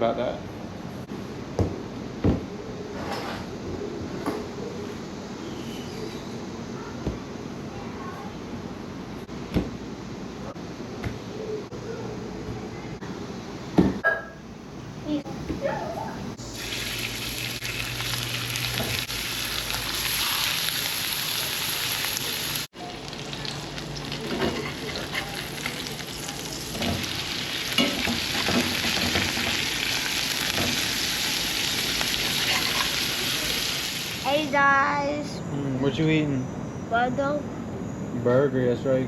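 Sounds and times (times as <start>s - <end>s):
burger patties sizzling: 16.4s - 34.6s.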